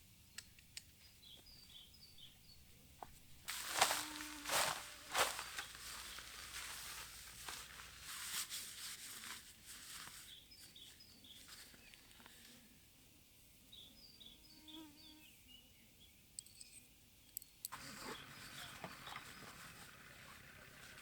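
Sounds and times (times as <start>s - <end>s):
soft hiss: 3.0s - 14.0s.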